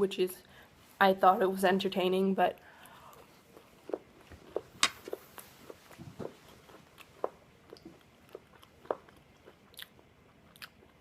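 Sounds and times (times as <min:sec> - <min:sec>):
chewing crunchy waffle: 0:03.0 - 0:11.0.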